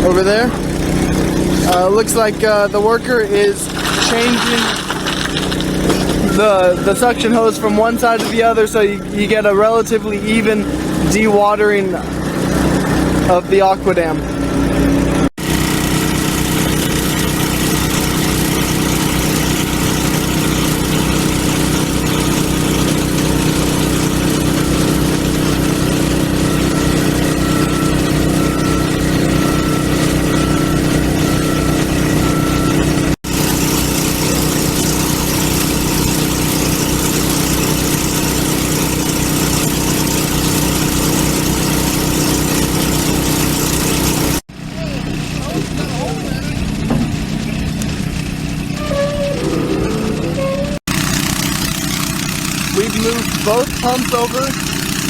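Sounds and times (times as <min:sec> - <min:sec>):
water pump engine running: 0:00.0 - 0:55.0.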